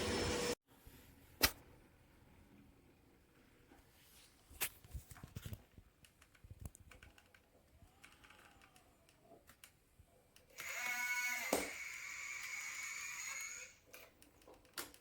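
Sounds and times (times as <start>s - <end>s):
robot vacuum motor whine: 0.0s - 0.6s, 10.6s - 13.8s.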